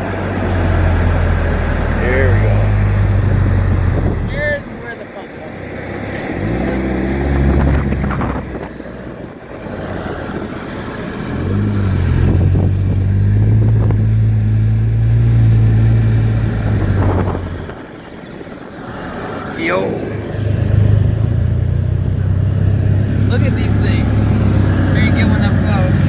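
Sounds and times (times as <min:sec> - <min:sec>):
turbocharged car engine: 0:00.0 - 0:26.0
wind rush: 0:00.2 - 0:04.8, 0:07.2 - 0:10.6, 0:16.0 - 0:21.9.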